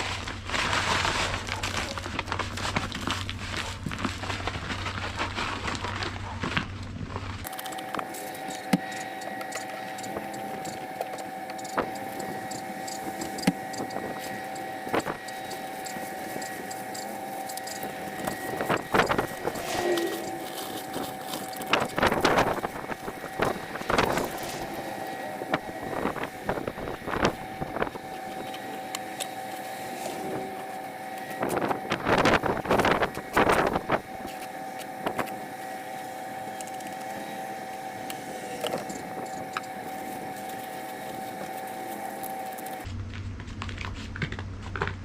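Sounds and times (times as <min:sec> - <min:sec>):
steady engine hum: 0:00.0 - 0:45.0
metal shovel scraping snowy pavement: 0:17.7 - 0:25.3.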